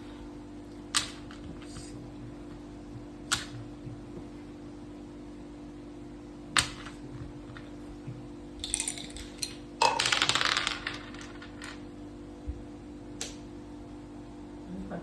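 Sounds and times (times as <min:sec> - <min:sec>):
dice rattling: 0:08.6 - 0:11.8
game pieces clicking: 0:08.6 - 0:11.8.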